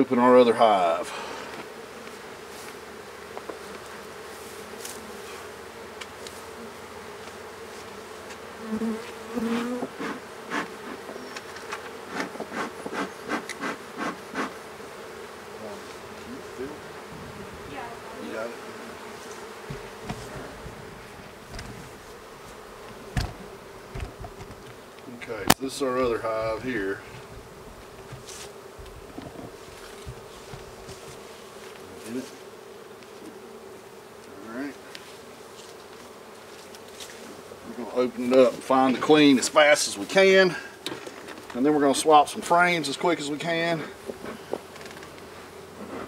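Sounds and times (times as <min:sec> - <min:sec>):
honey bees buzzing: 0:00.0 - 0:46.0
sharp knocks and clicks: 0:21.5 - 0:21.8, 0:22.9 - 0:24.8.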